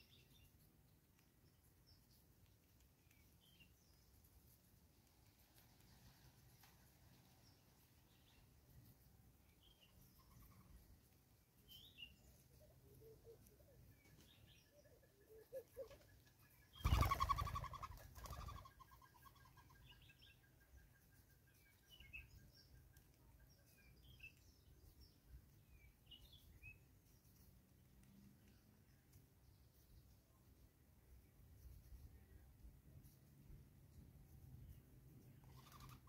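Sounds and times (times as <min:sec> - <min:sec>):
birds chirping: 0:09.5 - 0:27.4
thin rapid bird trill: 0:15.8 - 0:22.5, 0:35.4 - 0:36.0.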